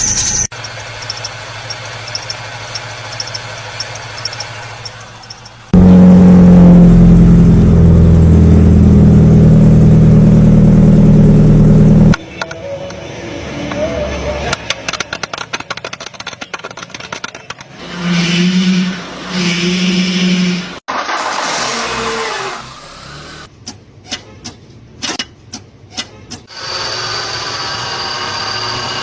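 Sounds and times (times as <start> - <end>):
car engine running: 0.6 - 12.2
rapid clicking: 14.6 - 17.7.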